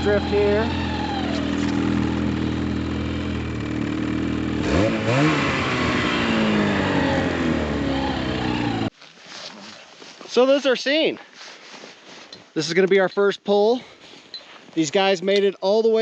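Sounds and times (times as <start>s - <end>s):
snowmobile engine revving: 0.0s - 8.9s.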